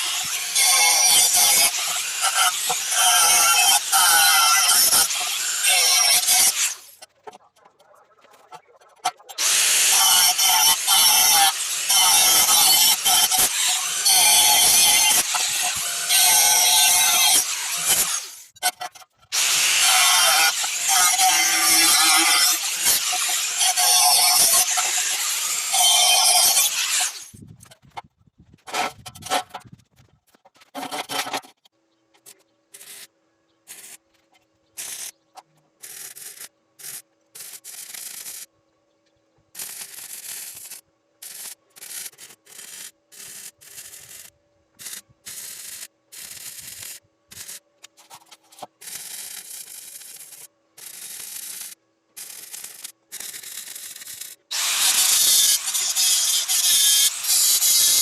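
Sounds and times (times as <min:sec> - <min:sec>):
sanding on steel tubing: 0:54.6 - 0:58.0.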